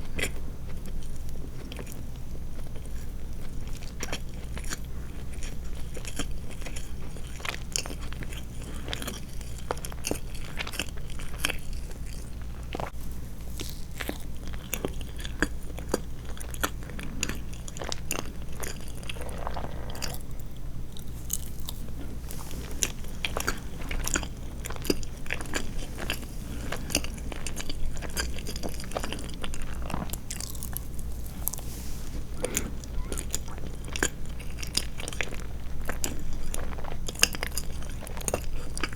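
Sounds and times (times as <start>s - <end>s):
steady low hum: 8.6s - 38.9s
wet chewing clicks and smacks: 22.7s - 31.6s, 32.4s - 38.9s.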